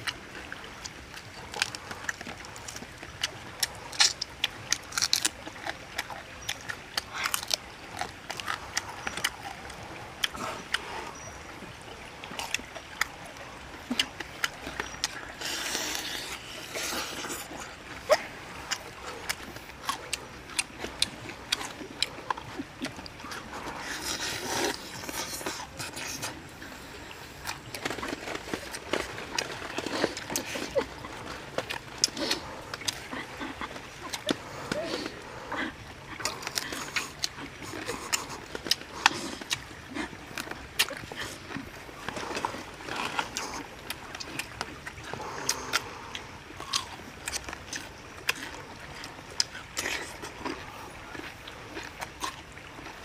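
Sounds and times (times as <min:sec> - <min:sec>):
man chewing chicken: 0:00.0 - 0:11.2, 0:12.3 - 0:53.0
wet mouth clicks: 0:00.8 - 0:11.3, 0:27.4 - 0:52.4.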